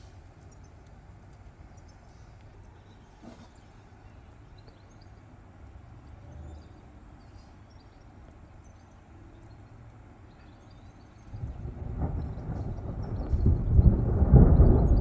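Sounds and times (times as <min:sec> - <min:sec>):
faint low rumble: 0:11.2 - 0:15.0
thunder rolling: 0:11.3 - 0:15.0.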